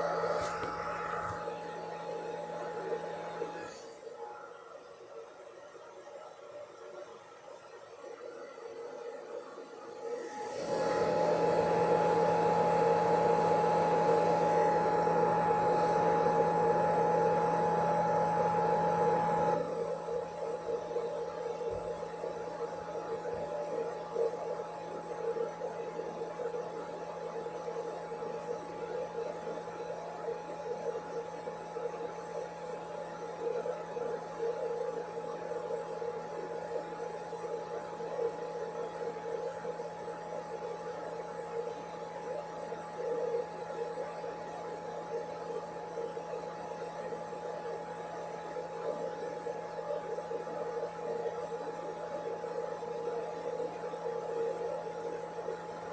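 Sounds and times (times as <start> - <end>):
blow dryer running: 0.0 - 3.6.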